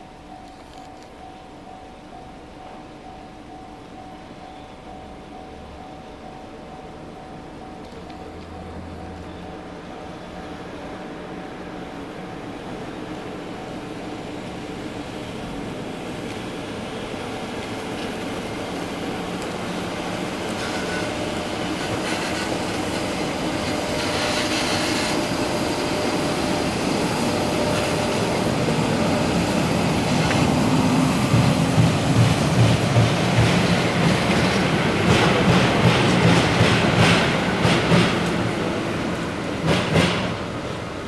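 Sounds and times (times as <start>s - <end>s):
electric locomotive motor hum: 0.0s - 41.0s
train wheels clacking over rail joints: 17.7s - 29.3s, 30.1s - 38.7s, 39.5s - 40.5s.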